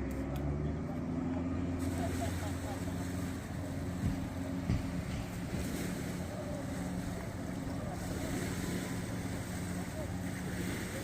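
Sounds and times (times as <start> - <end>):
low hum: 0.0 - 11.0
wind buffeting microphone: 3.0 - 11.0
short knocks: 4.0 - 5.8.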